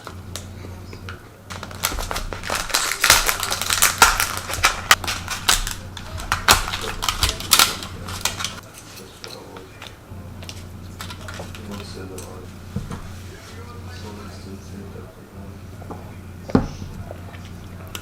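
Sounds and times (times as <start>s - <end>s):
sharp clicks and clacks: 0.0s - 8.6s
steady low hum: 0.0s - 18.0s.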